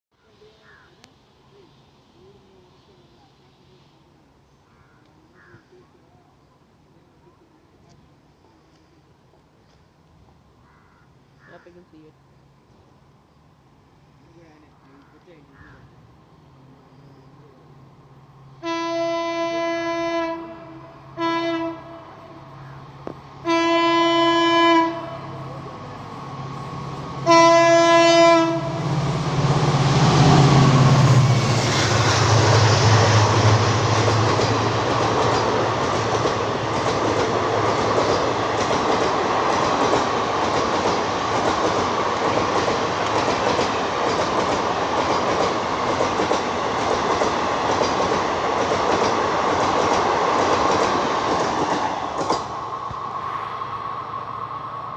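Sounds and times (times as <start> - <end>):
locomotive horn blasts: 18.6 - 22.5, 23.4 - 25.4, 27.2 - 28.9
wheels clacking over rail joints: 33.2 - 52.6.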